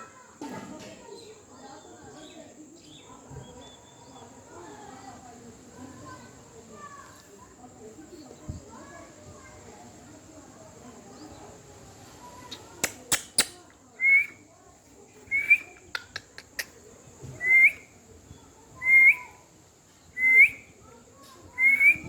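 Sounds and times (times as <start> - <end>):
parrot clicks: 12.5 - 13.7, 15.8 - 16.8
parrot whistling: 20.2 - 20.6, 21.6 - 22.0.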